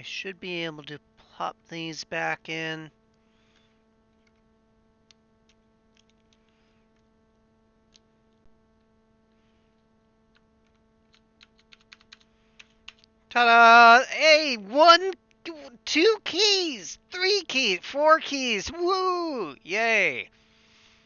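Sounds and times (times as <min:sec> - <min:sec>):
keycaps clicking onto keyboard: 0:10.3 - 0:13.1.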